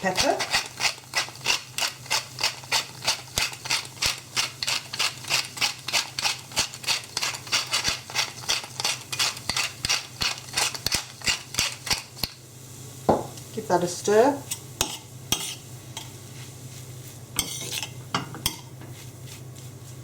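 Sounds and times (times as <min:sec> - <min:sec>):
pepper mill grinding: 0:00.0 - 0:12.4.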